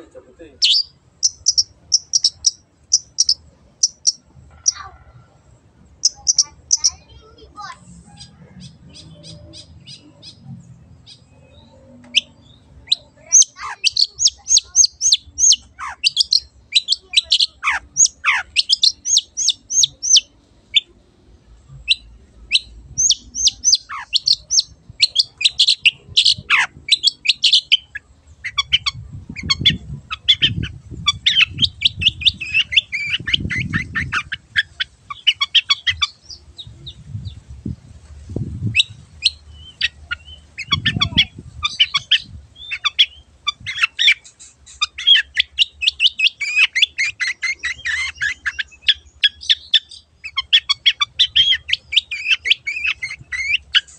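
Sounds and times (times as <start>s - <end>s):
shrike singing: 0.0s - 5.0s, 6.0s - 21.0s, 21.8s - 37.4s.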